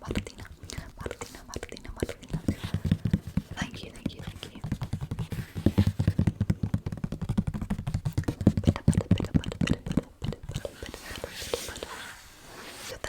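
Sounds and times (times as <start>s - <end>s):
fingertip tapping on an object: 2.0s - 11.3s.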